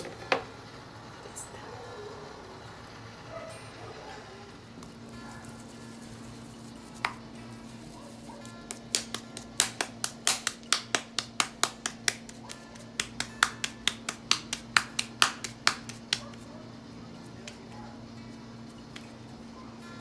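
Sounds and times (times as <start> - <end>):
hands slapping dough: 6.6 - 16.5, 17.2 - 17.8, 18.7 - 19.2.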